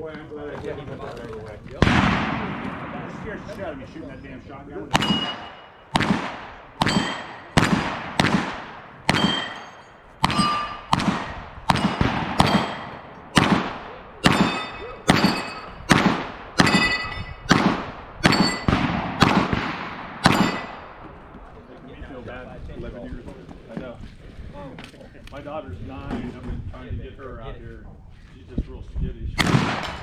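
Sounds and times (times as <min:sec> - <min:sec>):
gunshots: 0:01.8 - 0:03.8, 0:04.9 - 0:21.0, 0:29.4 - 0:30.0.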